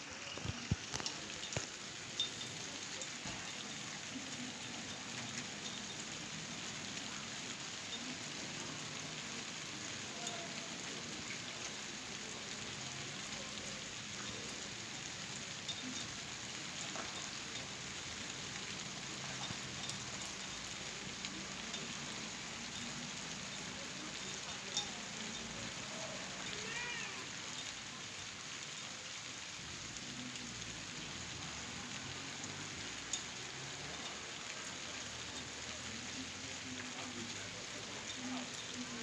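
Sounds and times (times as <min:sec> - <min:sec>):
light rain hiss: 0:00.0 - 0:39.0
raindrop ticks: 0:00.2 - 0:39.0.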